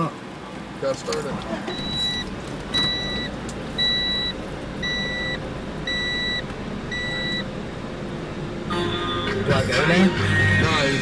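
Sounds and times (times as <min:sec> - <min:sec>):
low rumble of machinery: 0:00.4 - 0:11.0
high-pitched warning beeps: 0:01.7 - 0:07.5.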